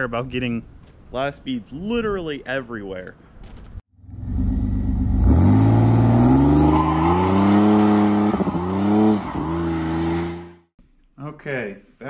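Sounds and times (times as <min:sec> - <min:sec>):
vehicle engine revving: 0:04.0 - 0:10.7.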